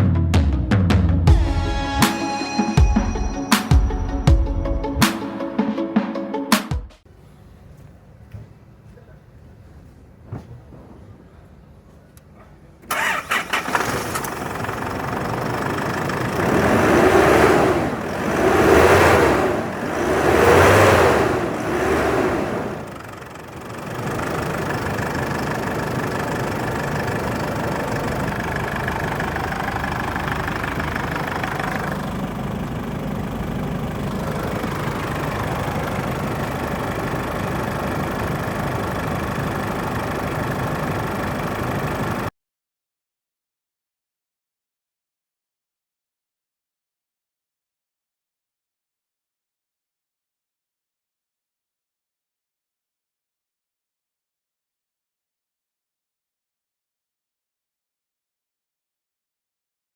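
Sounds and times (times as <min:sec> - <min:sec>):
car engine starting: 0:12.8 - 0:42.3
engine revving: 0:12.9 - 0:42.2
engine idling: 0:12.9 - 0:42.3.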